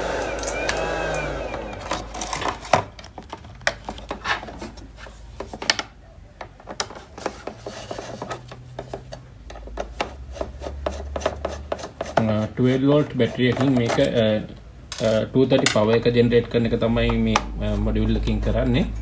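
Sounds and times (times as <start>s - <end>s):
objects handled on workbench: 1.7s - 12.5s, 13.2s - 14.3s.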